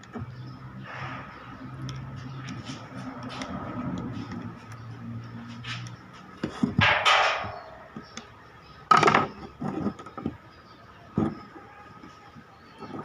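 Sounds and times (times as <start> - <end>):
hand tools knocking and scraping: 5.4 - 8.2
sharp knock: 6.8 - 7.8.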